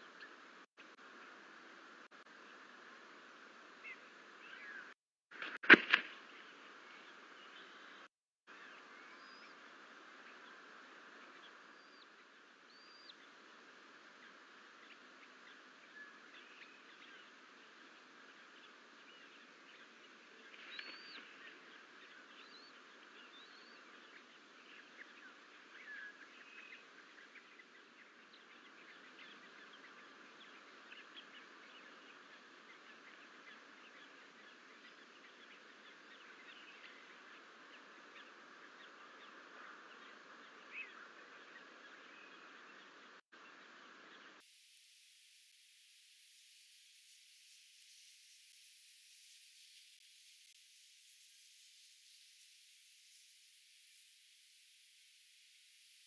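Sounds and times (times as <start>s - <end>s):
steady hiss: 44.4s - 56.0s.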